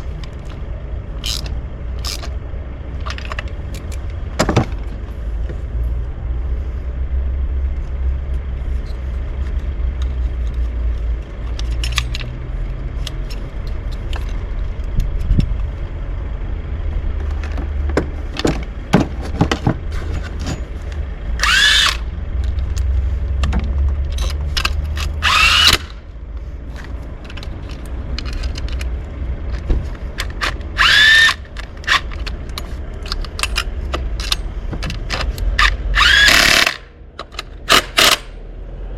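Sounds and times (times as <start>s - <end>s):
tool handling clicks and knocks: 0.0s - 5.6s, 8.3s - 15.9s, 17.1s - 38.4s
power drill spinning: 21.4s - 22.1s, 25.1s - 26.0s, 30.4s - 32.0s, 35.6s - 36.8s.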